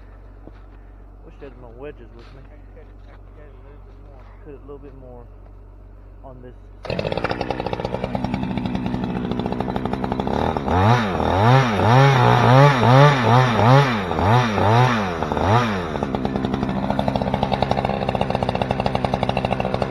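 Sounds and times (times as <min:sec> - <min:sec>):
chainsaw revving: 0:06.8 - 0:19.9.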